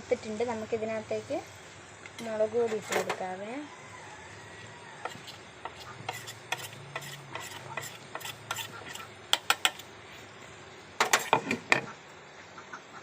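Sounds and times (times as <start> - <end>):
spoon stirring in a cooking pot: 5.0 - 9.9.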